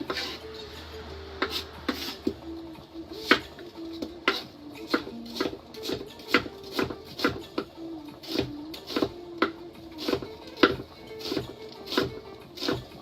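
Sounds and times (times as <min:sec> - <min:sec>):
faint music: 0:00.0 - 0:13.0
knife chopping on cutting board: 0:01.4 - 0:02.4, 0:03.2 - 0:03.6, 0:04.2 - 0:12.9.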